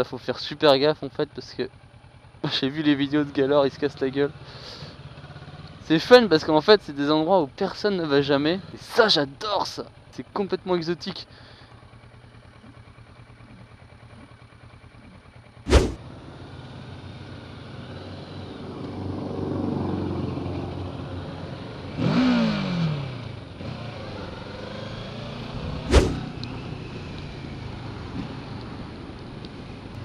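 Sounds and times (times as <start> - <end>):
motorcycle engine: 1.7 - 6.6, 11.3 - 30.0
road traffic: 1.7 - 7.2, 11.2 - 30.0.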